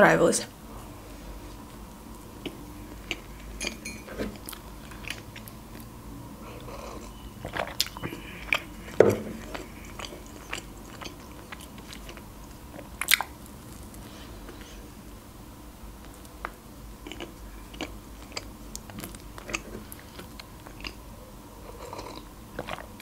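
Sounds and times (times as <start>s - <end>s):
close-miked chewing: 4.3s - 14.8s, 17.0s - 21.0s, 21.6s - 23.0s.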